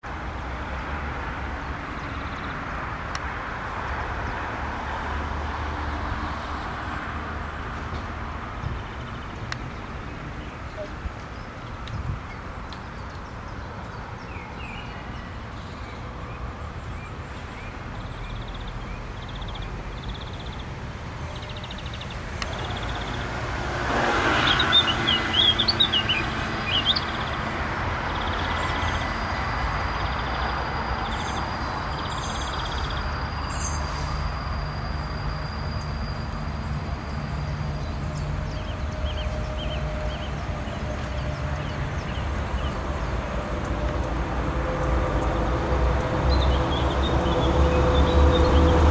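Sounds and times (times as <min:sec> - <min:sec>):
freight train rumbling past: 0:19.0 - 0:48.9
high-pitched wheel squeal: 0:21.2 - 0:27.4, 0:28.0 - 0:38.0.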